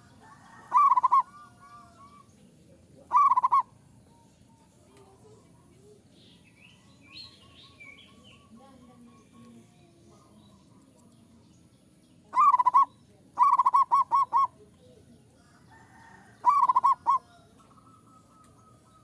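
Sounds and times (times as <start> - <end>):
dove cooing: 0.0 - 1.9, 3.1 - 3.7, 12.4 - 14.6, 16.4 - 19.0.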